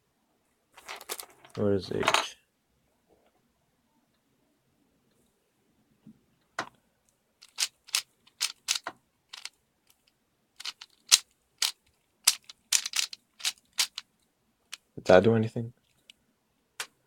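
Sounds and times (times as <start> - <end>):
plastic puzzle cube layers clicking: 7.4 - 14.0.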